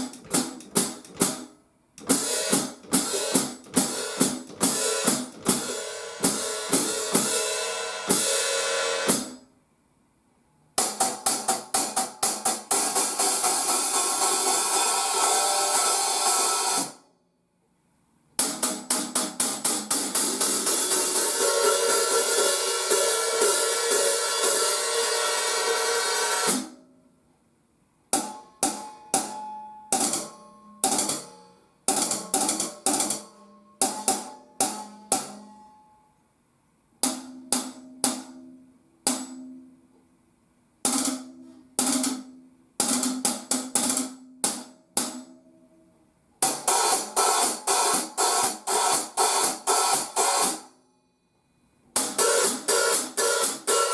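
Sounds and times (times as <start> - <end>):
hi-hat cymbals: 0.0 - 9.5, 10.8 - 17.0, 18.4 - 26.8, 46.4 - 53.9.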